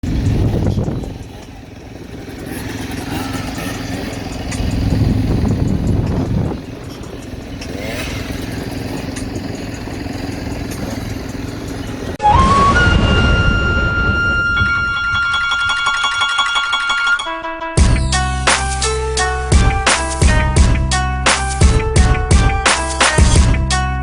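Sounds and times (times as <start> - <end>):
dirt bike engines running: 0.0 - 12.2.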